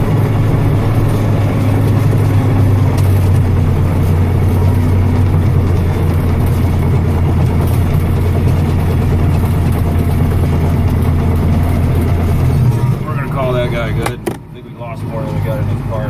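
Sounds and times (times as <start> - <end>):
farm machinery engine running: 0.0 - 16.0.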